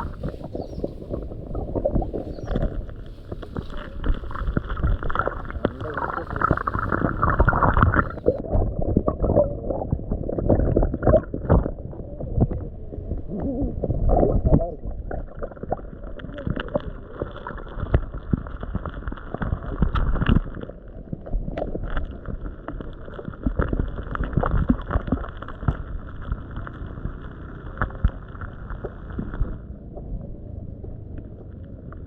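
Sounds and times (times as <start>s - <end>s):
fish splashing in water: 0.0s - 8.4s.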